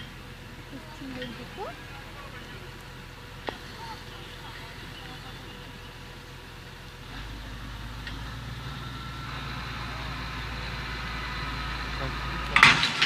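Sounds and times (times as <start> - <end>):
heavy vehicle engine humming: 0.0 - 13.0.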